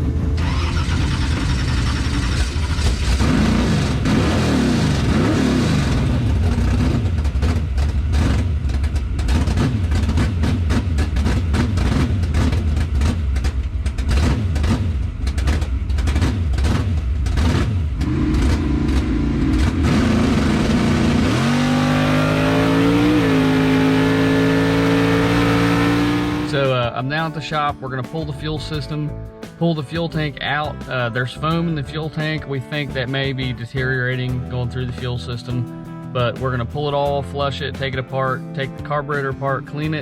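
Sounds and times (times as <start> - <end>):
car engine running rough and revving: 0.0 - 27.6, 28.2 - 40.0.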